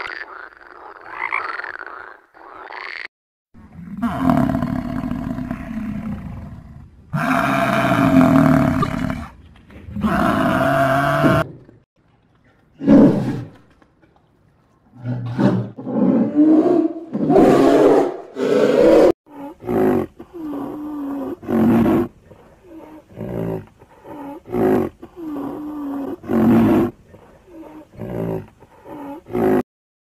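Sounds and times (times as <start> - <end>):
large animal roaring: 3.8 - 11.6.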